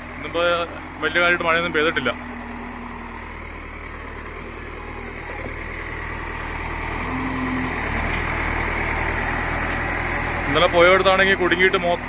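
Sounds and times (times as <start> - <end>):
truck diesel engine driving: 0.0 - 12.0.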